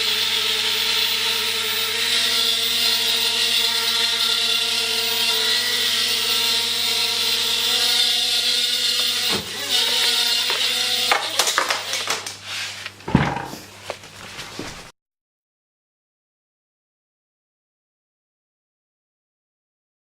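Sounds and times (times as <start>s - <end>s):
toy drone propellers whirring: 0.0s - 12.4s
knock: 13.1s - 13.7s.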